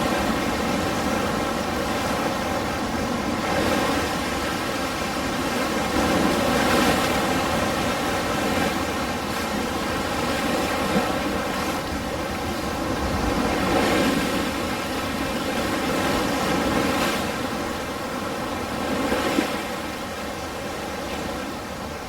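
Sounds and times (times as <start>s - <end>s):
ocean waves breaking: 0.0s - 22.0s.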